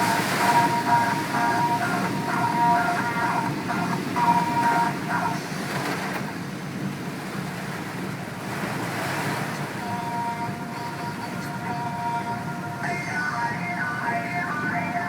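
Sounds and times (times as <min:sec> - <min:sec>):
held musical tones: 0:00.0 - 0:05.5, 0:09.8 - 0:15.0
rushing storm noise: 0:00.0 - 0:15.0.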